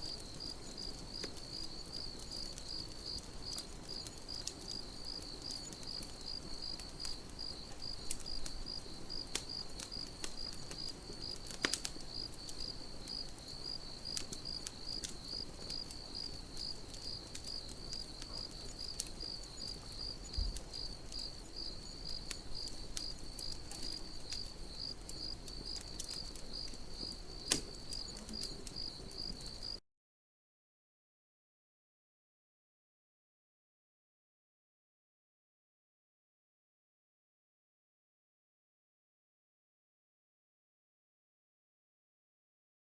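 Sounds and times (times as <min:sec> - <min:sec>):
campfire crackling and popping: 0:00.0 - 0:29.8
cricket chirping: 0:00.0 - 0:29.8.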